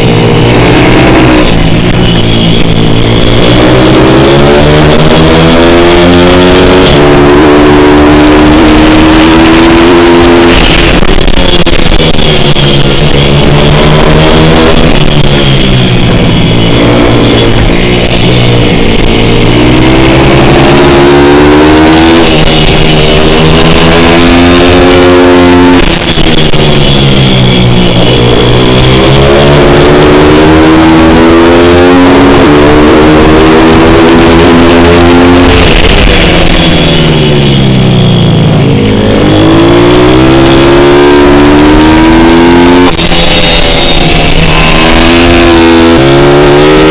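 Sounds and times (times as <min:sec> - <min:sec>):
motorbike engine revving hard: 0:00.0 - 0:46.9.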